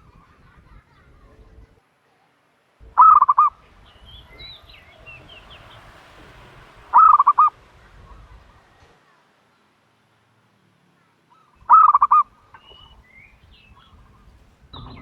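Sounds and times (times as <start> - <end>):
turtle dove cooing: 0.0 - 9.2, 11.3 - 15.0
faint high chirps: 2.1 - 6.0.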